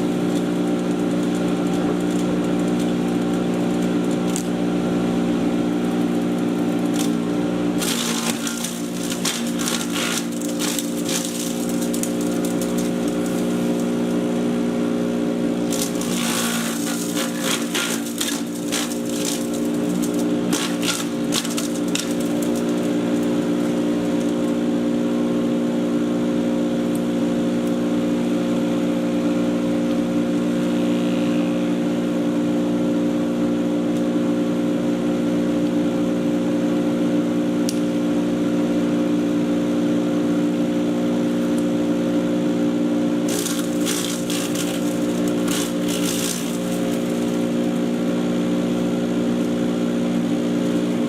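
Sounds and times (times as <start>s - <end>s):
sharp crackles of chipping: 0.0s - 4.6s, 7.8s - 14.2s, 15.6s - 24.6s, 43.3s - 48.2s
chipper shredder humming: 0.0s - 51.0s.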